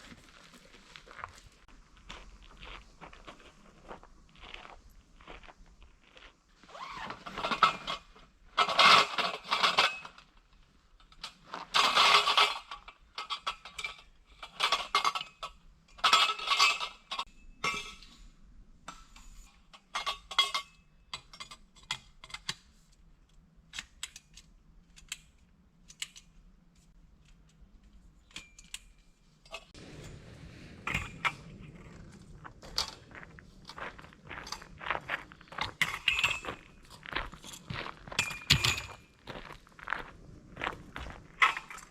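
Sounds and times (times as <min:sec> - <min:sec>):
rustling and scraping of gear: 0:00.0 - 0:17.3, 0:21.6 - 0:41.9
light metallic clicks and clinks: 0:18.9 - 0:29.7, 0:35.5 - 0:39.2.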